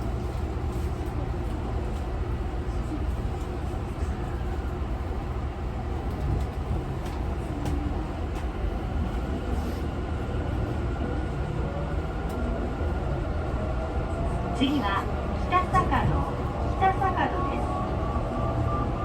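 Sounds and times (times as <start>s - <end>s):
train running rumble: 0.0s - 19.0s.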